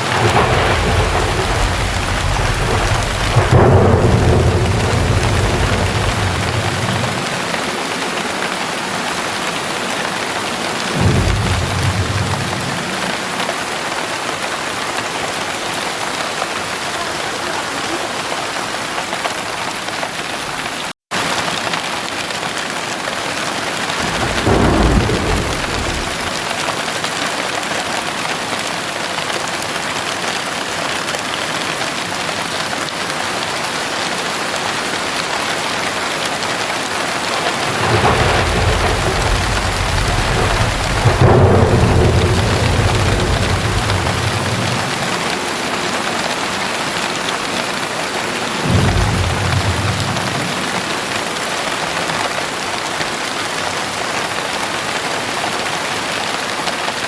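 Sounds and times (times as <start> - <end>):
thunder rumbling: 0.0 - 19.9, 23.4 - 27.2, 34.0 - 52.6
heavy rain falling: 0.0 - 57.0.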